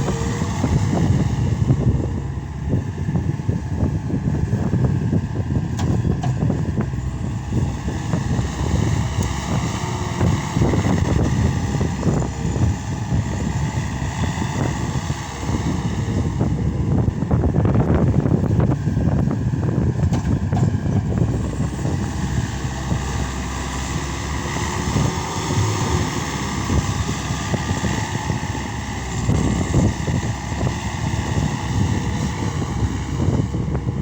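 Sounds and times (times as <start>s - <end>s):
diesel engine running: 0.0s - 34.0s
knocks and clatter: 20.0s - 21.2s.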